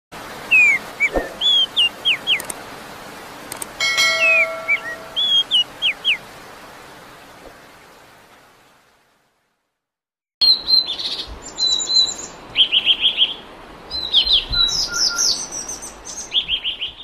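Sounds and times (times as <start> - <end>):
songbird whistling: 0.5 - 2.5, 4.1 - 6.2, 14.0 - 17.0
bell-like chime: 3.8 - 5.2.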